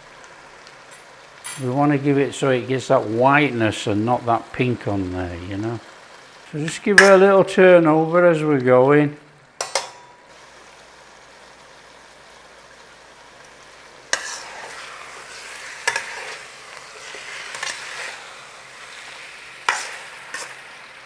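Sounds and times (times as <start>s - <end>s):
chicken sizzling in a pan: 0.0s - 21.0s
utensil scraping and knocking pan: 15.8s - 16.4s.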